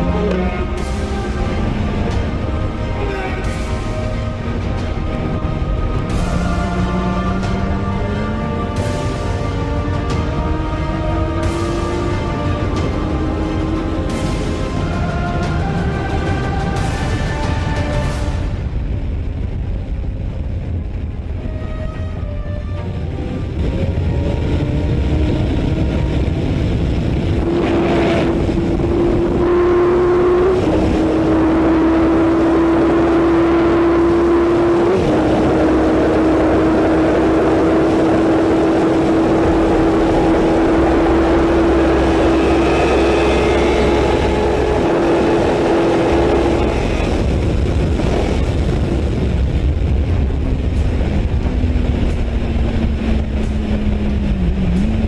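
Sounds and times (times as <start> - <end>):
sport motorcycle engine running: 23.6 - 55.0.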